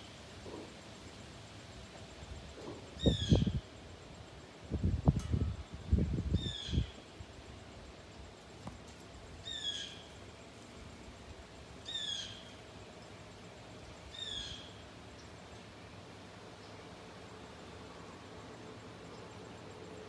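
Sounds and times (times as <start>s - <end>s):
bird calling: 9.4s - 10.2s, 11.8s - 13.2s, 14.0s - 15.4s.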